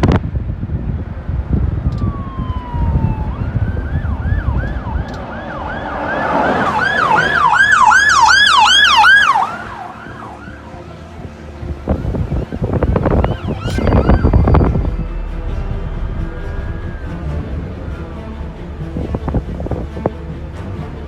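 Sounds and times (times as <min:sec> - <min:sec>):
emergency siren wailing: 0:01.4 - 0:20.5
low rumble: 0:12.7 - 0:21.0.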